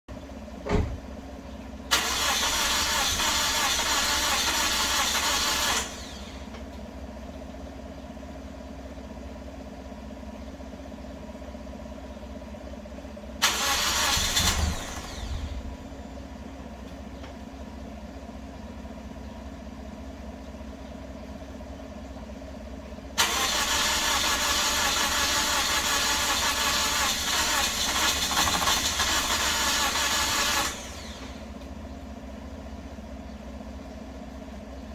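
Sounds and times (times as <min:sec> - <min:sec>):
car engine cranking on starter: 0:01.9 - 0:06.6, 0:13.4 - 0:16.1, 0:23.2 - 0:31.7
exhaust sputtering: 0:23.2 - 0:31.6.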